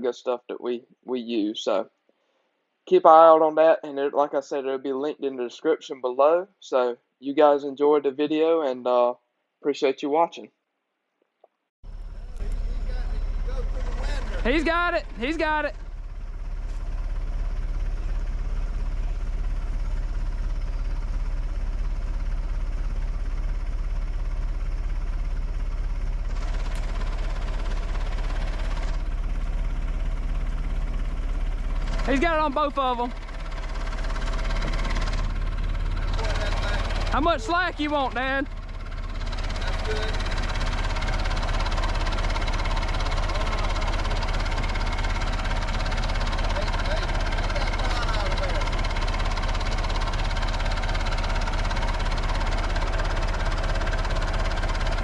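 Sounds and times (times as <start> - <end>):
backhoe engine idling: 11.8 - 55.0.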